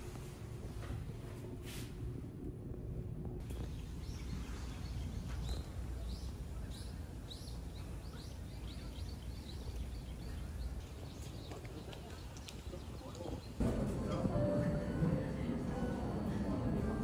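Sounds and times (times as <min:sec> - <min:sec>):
low outdoor rumble: 0:00.0 - 0:17.0
small birds chirping: 0:03.4 - 0:13.6.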